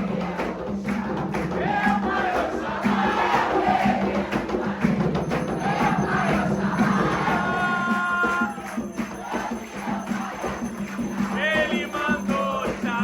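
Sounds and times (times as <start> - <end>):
group singing a chant: 0.0 - 13.0
hand drum: 0.0 - 13.0
rattle or tambourine: 2.8 - 13.0.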